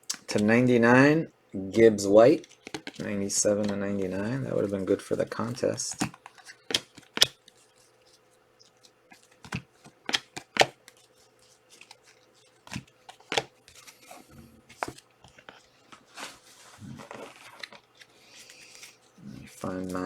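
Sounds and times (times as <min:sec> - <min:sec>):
cards clicking and snapping: 0:02.4 - 0:03.8, 0:04.4 - 0:16.0.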